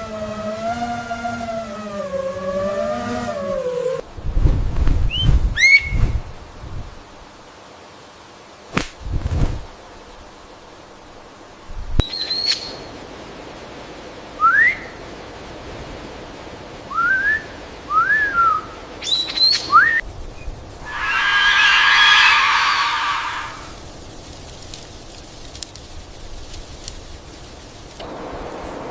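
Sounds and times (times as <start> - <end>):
short rising whistles: 0.0 - 4.0, 20.8 - 23.8
sharp high bird chirps: 12.0 - 12.9, 20.8 - 23.8.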